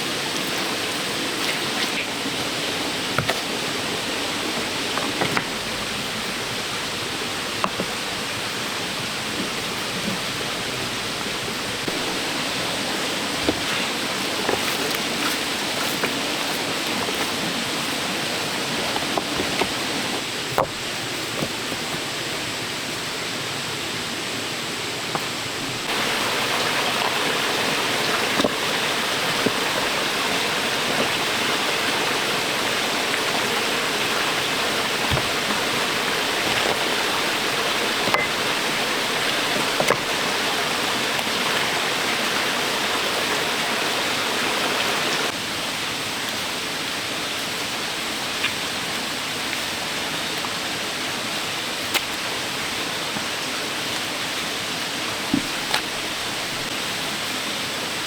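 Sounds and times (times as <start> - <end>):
water rushing: 0.0 - 58.0.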